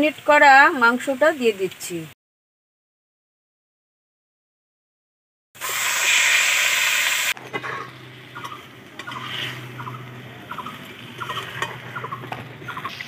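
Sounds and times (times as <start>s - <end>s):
chicken sizzling in hot oil: 5.6s - 13.0s
metal spatula stirring: 7.5s - 9.6s.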